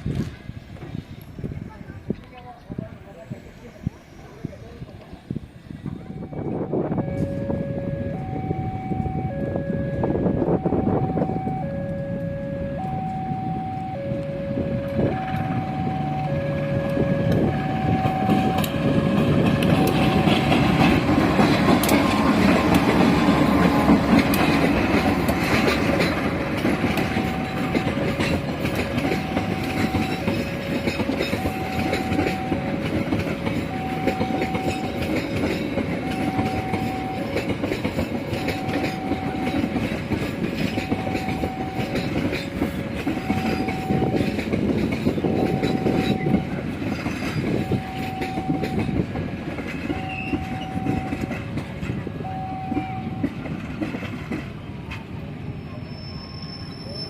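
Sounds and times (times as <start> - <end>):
train wheels clickety-clack: 0.0 - 2.4, 14.9 - 55.4
level-crossing alarm beeping: 3.1 - 53.7.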